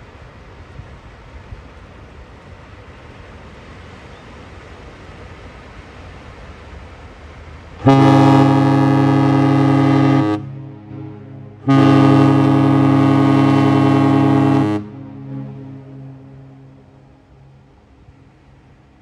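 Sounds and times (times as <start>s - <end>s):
ship whistle deep blasts: 7.8s - 17.6s.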